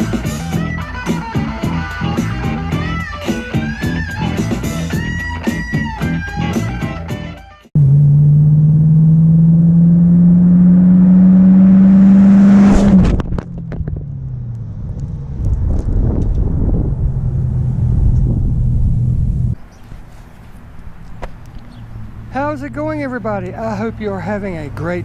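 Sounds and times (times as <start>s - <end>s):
car engine revving: 7.8s - 19.6s.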